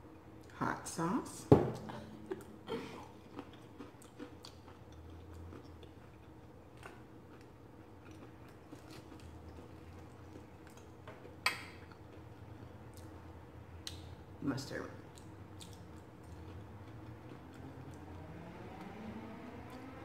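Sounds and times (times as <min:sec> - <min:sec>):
faint chewing: 0:02.2 - 0:14.0, 0:15.0 - 0:18.2.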